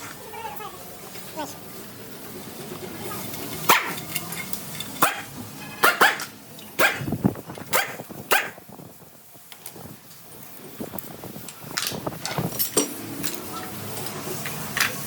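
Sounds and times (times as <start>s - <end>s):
dog barking: 3.7s - 4.0s, 5.0s - 7.1s, 7.7s - 8.6s.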